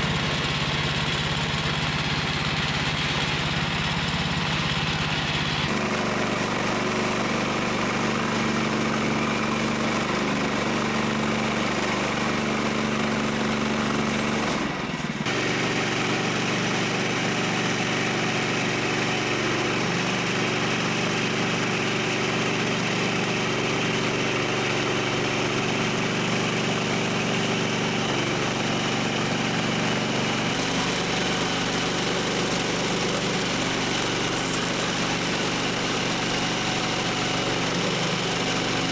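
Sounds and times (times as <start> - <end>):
small gasoline engine running: 0.0 - 38.9.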